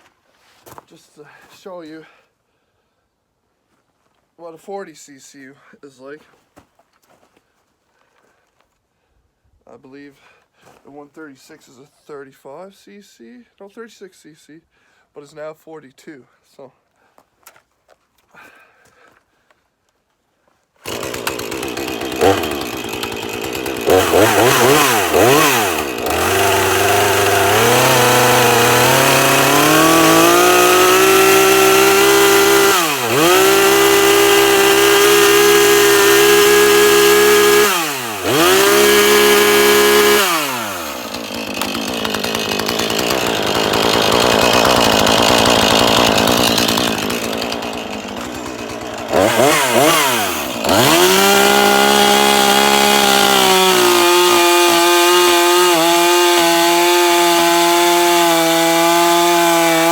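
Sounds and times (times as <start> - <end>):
chainsaw cutting wood: 20.8 - 59.9
chainsaw revving: 20.8 - 59.9.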